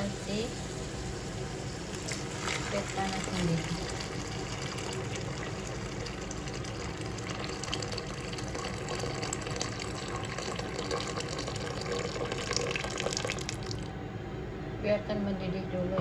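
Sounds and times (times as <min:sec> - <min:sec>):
water pouring into a pan: 0:01.8 - 0:13.9.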